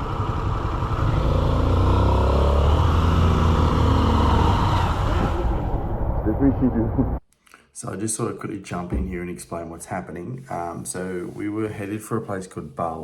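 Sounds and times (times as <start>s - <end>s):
motorcycle engine at low revs: 0.0s - 5.8s.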